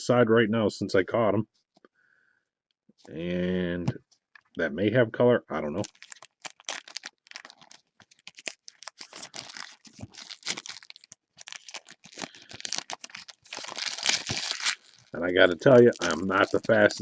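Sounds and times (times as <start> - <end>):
wrappers tearing and crinkling: 5.8 - 17.0.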